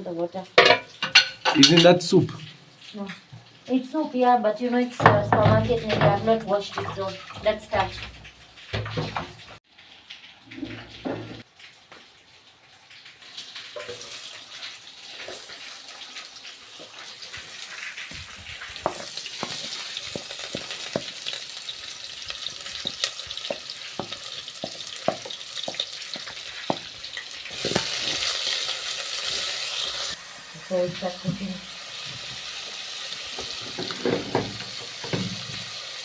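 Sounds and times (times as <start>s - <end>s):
onions sizzling in oil: 0.0s - 2.2s, 13.2s - 36.0s.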